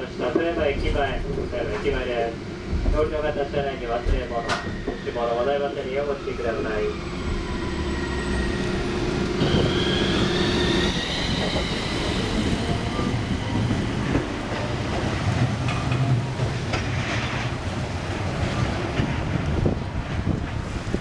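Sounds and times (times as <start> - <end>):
tram rumble: 0.0 - 21.0
rail clicks: 0.2 - 21.0
tram motor whine: 1.0 - 21.0.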